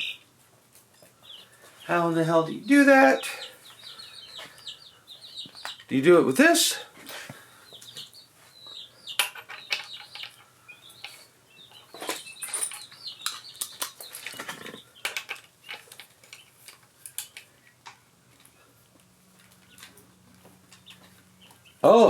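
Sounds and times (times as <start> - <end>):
metal tools clinking on engine parts: 11.8 - 16.4.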